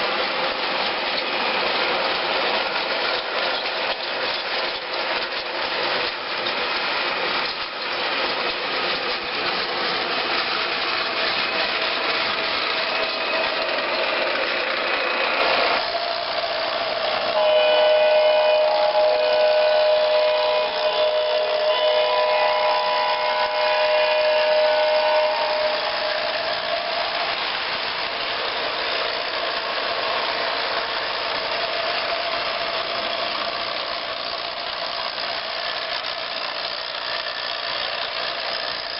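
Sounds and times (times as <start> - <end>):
train rumbling past: 0.0 - 38.9
locomotive horn: 17.2 - 26.5.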